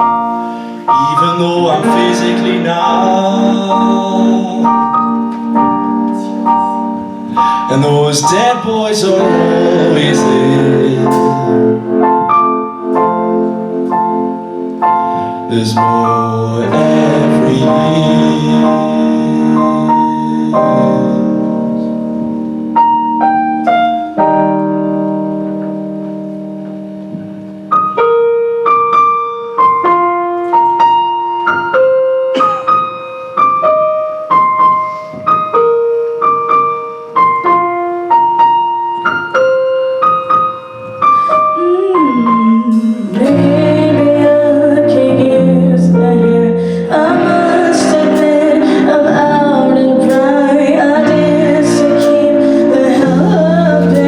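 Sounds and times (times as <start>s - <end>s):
slow piano playing: 0.0s - 54.0s
sustained wordless singing: 0.8s - 5.4s, 7.4s - 12.0s, 15.2s - 21.8s, 41.6s - 54.0s.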